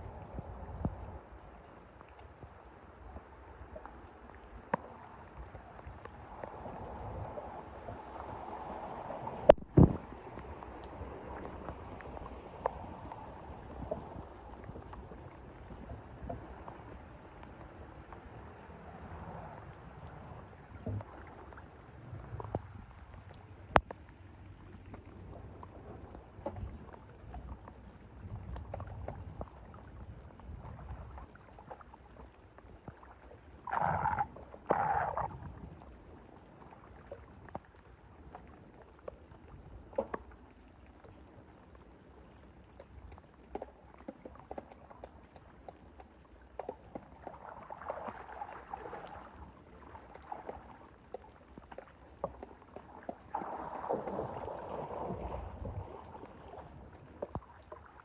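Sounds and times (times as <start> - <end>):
water sloshing in a drain: 42.2 - 58.0.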